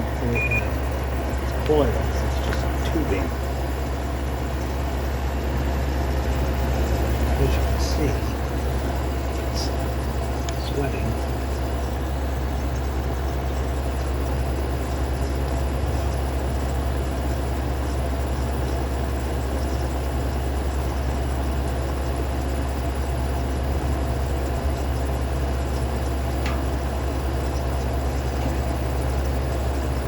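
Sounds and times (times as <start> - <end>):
fan rushing: 0.0 - 17.5, 25.3 - 30.0
low compressor hum: 0.0 - 30.0.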